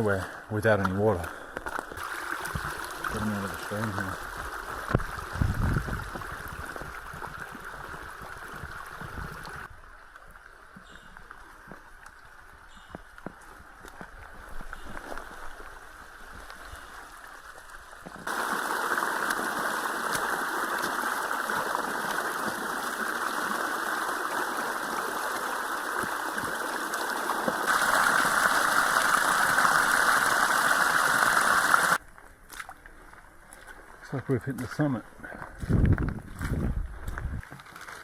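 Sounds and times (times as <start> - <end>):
mountain stream rushing: 18.2 - 32.0.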